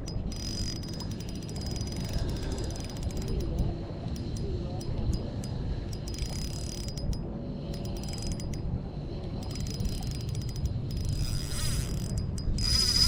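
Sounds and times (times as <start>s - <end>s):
fishing reel clicking: 0.0s - 5.2s, 5.9s - 8.6s, 9.4s - 13.0s
steady low rumble: 0.0s - 13.0s.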